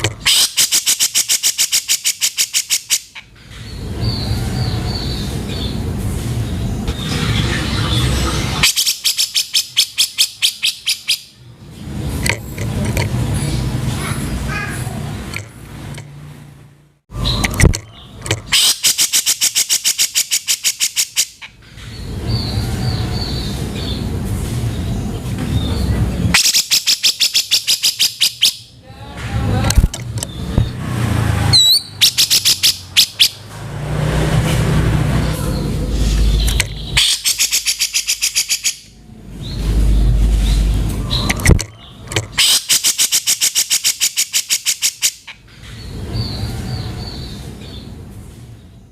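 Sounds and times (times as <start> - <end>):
bird rattling call: 0.0 - 3.6, 17.2 - 22.5, 35.9 - 38.9, 39.5 - 45.4.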